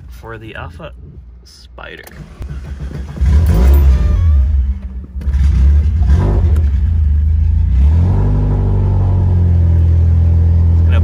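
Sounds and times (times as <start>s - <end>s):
car engine cold start: 2.0s - 6.8s.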